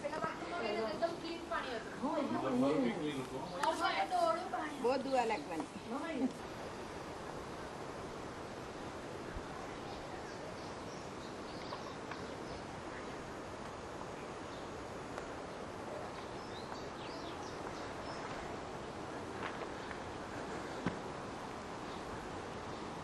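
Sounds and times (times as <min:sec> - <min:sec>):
small birds chirping: 0:09.2 - 0:13.3, 0:14.0 - 0:20.9.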